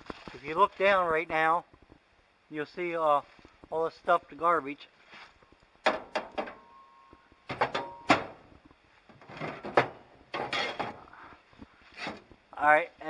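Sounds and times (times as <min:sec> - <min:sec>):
footsteps on debris: 0:00.0 - 0:01.1.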